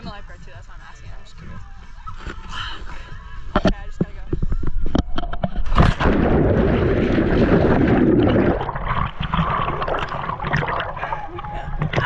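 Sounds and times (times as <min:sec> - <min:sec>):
muffled churning gurgling water: 0:03.5 - 0:12.0
splash into water: 0:05.7 - 0:12.0.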